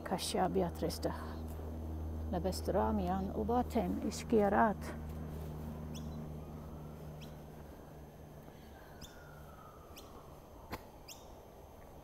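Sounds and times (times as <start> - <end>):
high bird chirps: 5.9 - 6.3, 8.6 - 10.2, 11.0 - 11.4.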